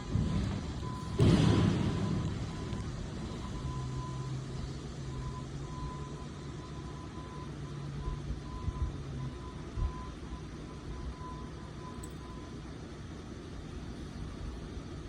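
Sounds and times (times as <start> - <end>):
truck engine running: 0.0 - 15.0
faint high-pitched beep: 5.1 - 12.6.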